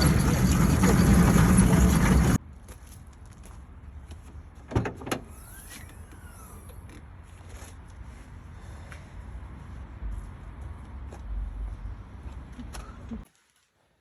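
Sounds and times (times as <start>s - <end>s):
car engine rumbling: 0.0s - 2.4s.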